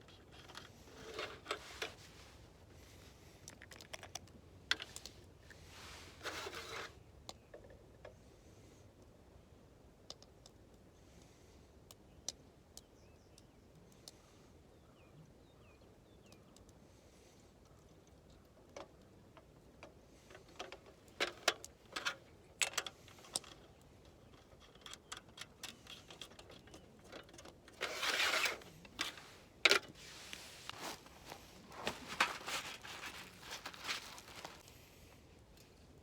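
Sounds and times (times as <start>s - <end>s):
rustling scrape: 0.0s - 2.5s, 5.6s - 7.0s, 25.7s - 34.9s
clicks and knocks of handling: 3.4s - 5.6s, 17.6s - 34.7s.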